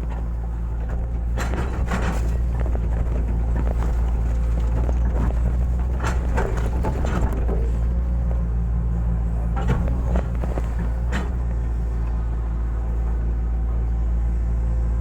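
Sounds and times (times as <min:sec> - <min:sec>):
machine knocks and scrapes: 0:00.0 - 0:07.9, 0:09.5 - 0:11.6
diesel engine running under load: 0:00.0 - 0:15.0.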